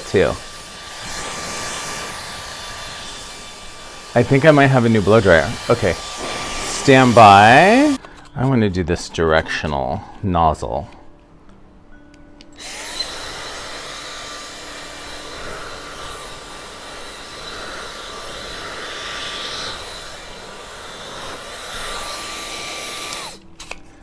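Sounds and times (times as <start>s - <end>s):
hair dryer blowing: 0.0s - 8.0s, 12.6s - 23.4s.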